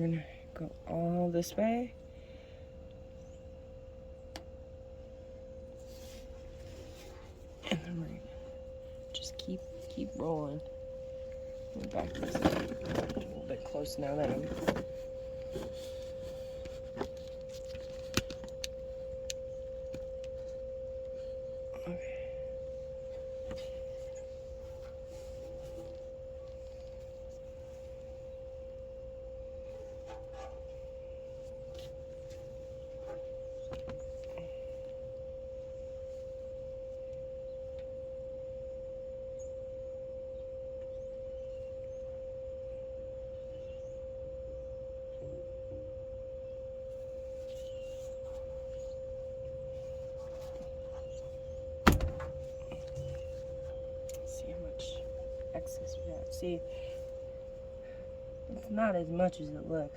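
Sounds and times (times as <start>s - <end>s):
high hum-like tone: 0.0s - 59.9s
handling clicks and knocks: 12.0s - 13.5s.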